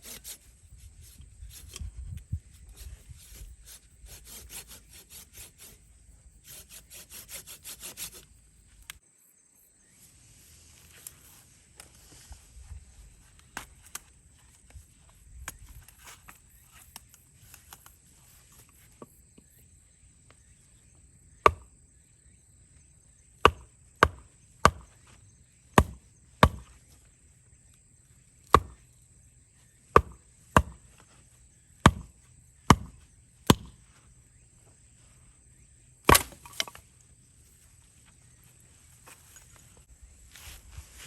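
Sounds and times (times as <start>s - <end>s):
blade chopping wood: 21.4s - 21.7s, 23.4s - 24.9s, 25.8s - 26.7s, 28.5s - 28.8s, 29.9s - 30.9s, 31.8s - 33.8s, 36.0s - 36.8s.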